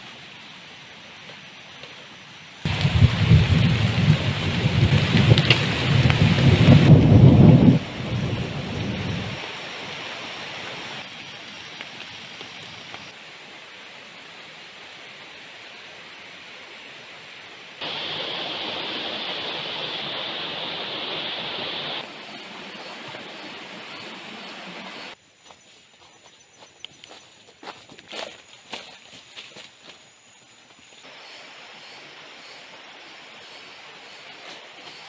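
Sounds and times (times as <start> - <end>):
heavy rain hissing: 2.2 - 25.2
low rumble: 2.7 - 9.3.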